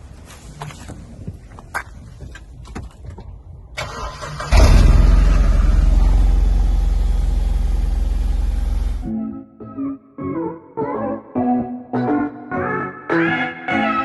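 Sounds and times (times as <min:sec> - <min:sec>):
car engine starting and idling: 0:03.8 - 0:09.1.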